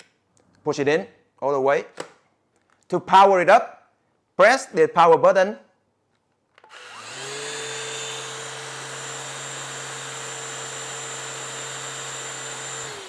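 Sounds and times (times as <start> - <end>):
hand vacuum running: 6.6 - 13.0.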